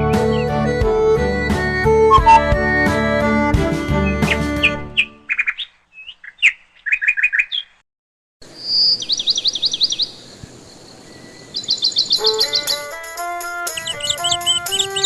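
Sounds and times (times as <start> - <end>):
small birds chirping: 0.2 - 0.6, 2.1 - 2.5, 4.0 - 7.8, 8.4 - 15.0
bird trilling: 2.1 - 2.5, 4.0 - 7.8, 8.6 - 10.2, 11.1 - 15.0.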